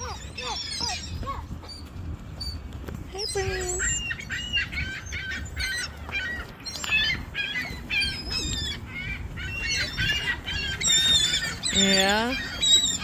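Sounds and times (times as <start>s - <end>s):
seagulls calling: 0.0s - 13.0s.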